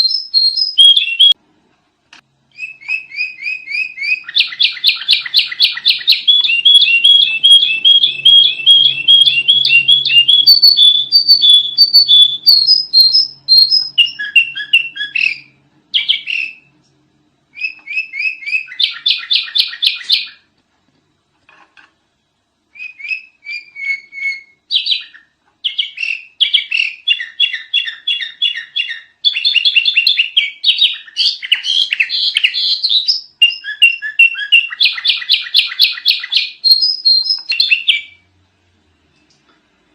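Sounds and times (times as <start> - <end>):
bird chirping and whistling: 0.0 - 1.4, 2.5 - 16.7, 17.5 - 20.4, 22.7 - 38.2.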